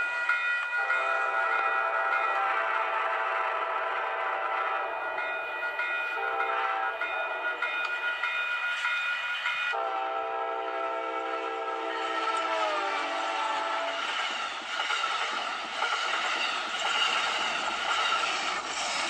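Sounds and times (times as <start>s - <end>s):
train horn sounding: 0.8s - 5.2s, 6.1s - 7.6s, 9.8s - 14.2s.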